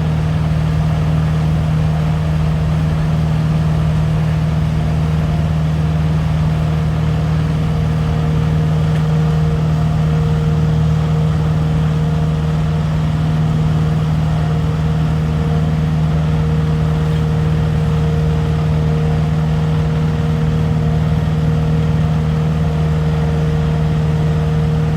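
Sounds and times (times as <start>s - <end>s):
truck engine and machinery droning: 0.0s - 24.9s.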